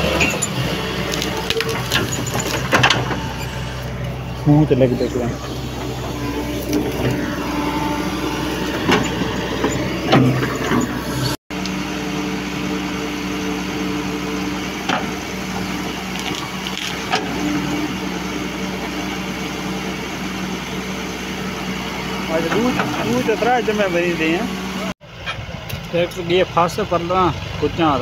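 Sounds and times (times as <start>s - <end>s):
heavy machinery diesel engine: 0.0s - 28.0s
wood splitting cracks: 1.0s - 3.0s, 16.0s - 17.2s.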